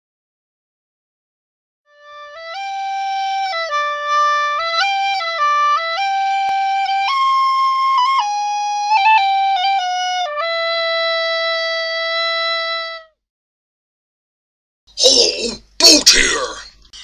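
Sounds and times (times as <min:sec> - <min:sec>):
flute-like wind instrument melody: 0:01.9 - 0:13.2.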